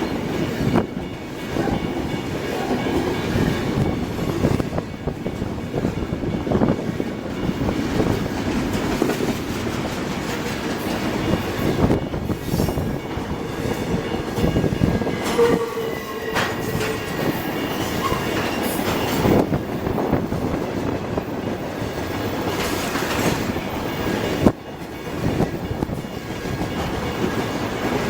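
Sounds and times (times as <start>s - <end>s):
wheels clacking over rail joints: 0.0s - 28.0s
train wheel squeal: 10.9s - 20.5s.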